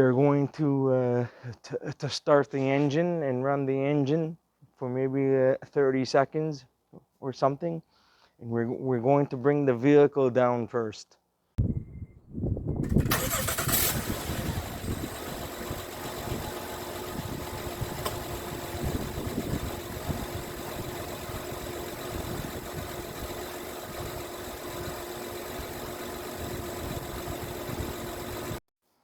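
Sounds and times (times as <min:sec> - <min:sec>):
car engine starting and idling: 0:12.8 - 0:28.6.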